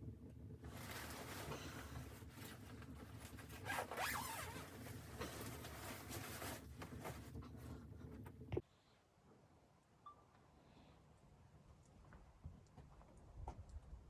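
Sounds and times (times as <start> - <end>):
zipper being pulled: 3.2 - 7.3.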